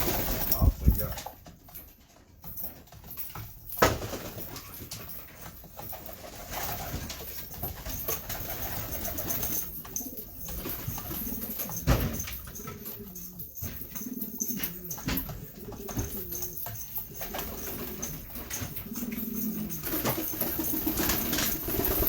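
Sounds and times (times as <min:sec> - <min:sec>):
pigeons cooing: 0:06.0 - 0:22.0.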